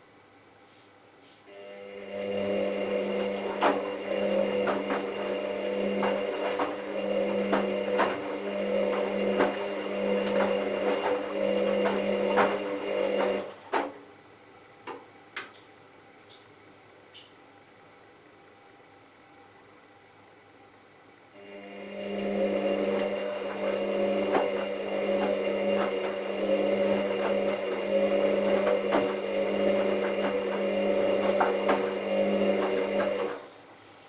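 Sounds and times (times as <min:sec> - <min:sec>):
washing machine motor humming: 0:01.5 - 0:13.7, 0:21.4 - 0:33.5
tumbling wash load knocking: 0:22.3 - 0:33.3.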